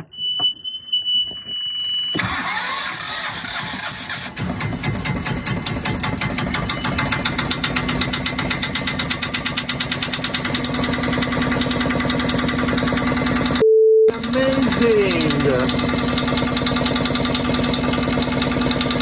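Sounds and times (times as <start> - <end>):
loud steady beep: 0.0 - 2.3, 13.6 - 15.7
boat engine running: 7.0 - 19.0.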